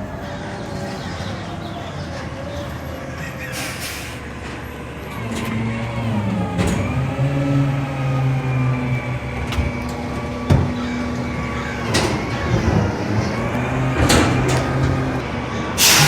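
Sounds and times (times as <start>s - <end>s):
garbage truck diesel engine: 0.0s - 16.0s
air hiss: 15.8s - 16.0s.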